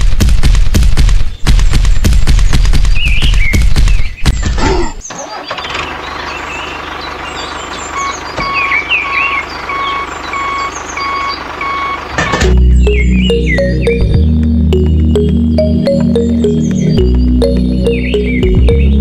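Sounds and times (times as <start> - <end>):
low engine hum: 5.6 - 19.0
heavy engine knocking: 6.0 - 15.4
beeping alarm: 7.9 - 18.8.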